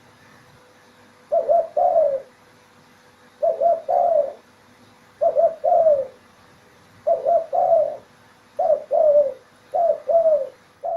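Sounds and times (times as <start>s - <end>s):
dove cooing: 1.3s - 2.4s, 3.4s - 4.5s, 5.2s - 6.2s, 7.0s - 10.9s.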